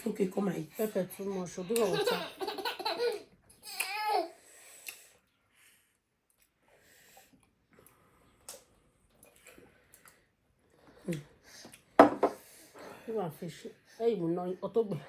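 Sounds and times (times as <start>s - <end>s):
breathing: 4.4s - 8.5s, 9.3s - 14.2s
soft mouth eating noises: 6.3s - 11.9s.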